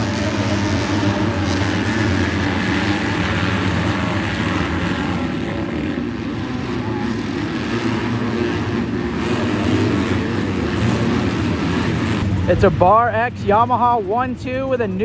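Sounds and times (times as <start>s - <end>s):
motocross bikes racing: 0.0s - 15.0s.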